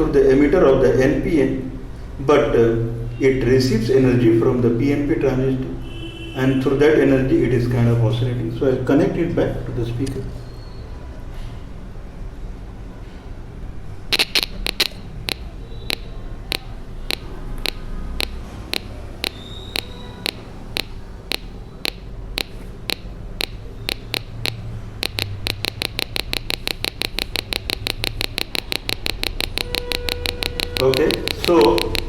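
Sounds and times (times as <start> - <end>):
speaker clicking in pulse: 14.1 - 32.0.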